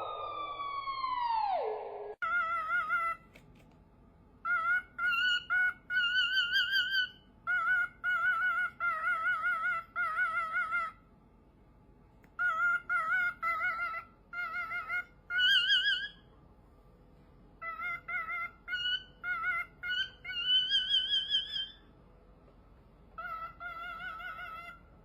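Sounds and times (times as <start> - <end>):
bird warbling calls: 4.5 - 11.0, 12.4 - 16.3, 17.6 - 21.9, 23.2 - 24.8.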